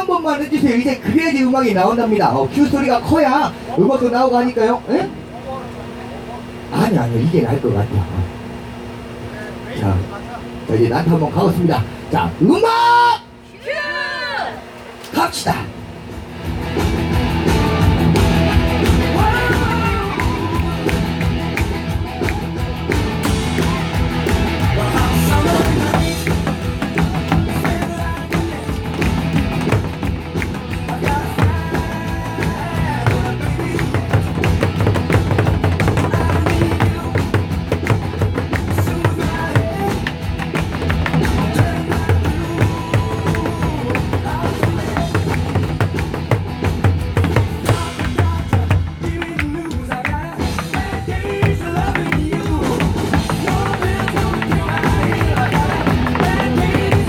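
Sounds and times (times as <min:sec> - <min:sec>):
drums struck to the beat: 0:16.5 - 0:57.0
song over loudspeakers: 0:16.6 - 0:57.0.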